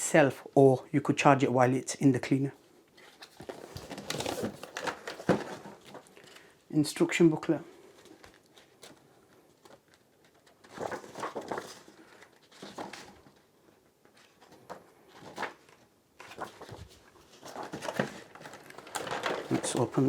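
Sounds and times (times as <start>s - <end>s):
packaging rustling: 3.0s - 6.6s, 7.8s - 20.0s.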